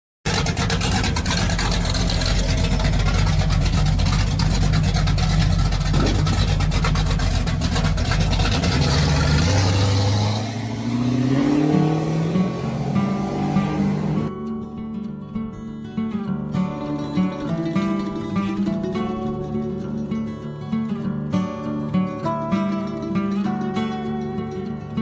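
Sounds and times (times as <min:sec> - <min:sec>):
car engine running: 0:00.3 - 0:14.3
music: 0:11.8 - 0:25.0.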